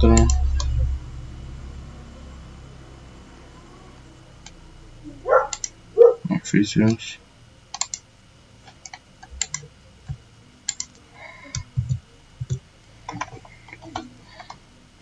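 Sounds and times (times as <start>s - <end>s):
soft low thumps: 0.0s - 3.2s, 11.6s - 12.6s
mouse and keyboard clicks: 7.7s - 8.0s, 8.7s - 9.7s.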